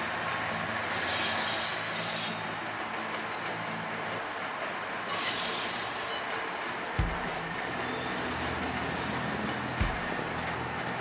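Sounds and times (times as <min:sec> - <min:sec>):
train rumble: 0:00.0 - 0:11.0
high-pitched wheel squeal: 0:05.1 - 0:06.4, 0:07.7 - 0:09.6.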